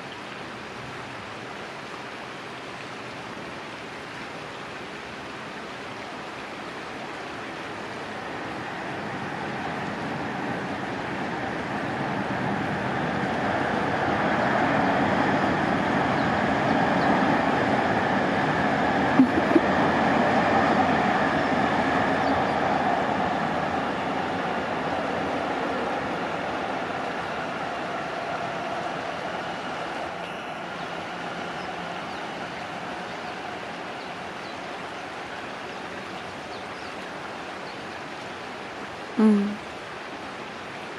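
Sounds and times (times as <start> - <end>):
steady rushing noise: 7.2 - 37.3
passing vehicle rumble: 8.2 - 35.0.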